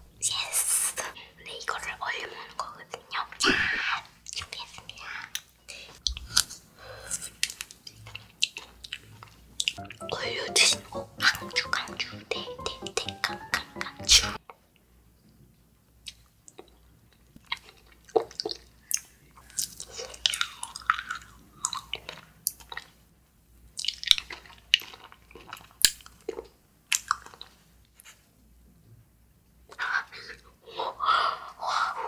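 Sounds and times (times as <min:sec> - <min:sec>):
chewing jelly candy: 0:05.3 - 0:09.7, 0:16.0 - 0:23.0, 0:23.7 - 0:27.6.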